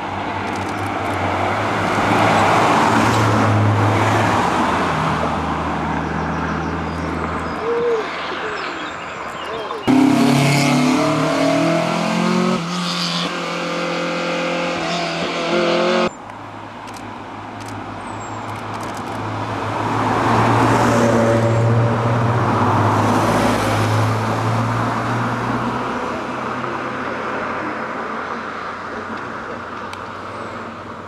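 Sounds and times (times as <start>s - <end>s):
sports car passing by: 9.9s - 16.2s.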